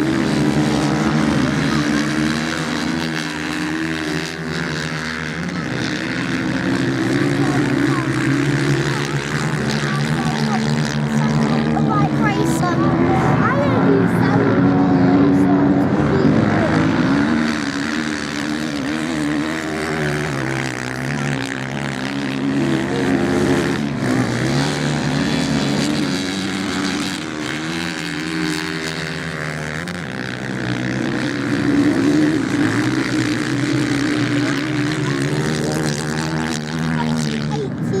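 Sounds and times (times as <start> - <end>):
racing motorcycle engines: 0.0 - 38.0.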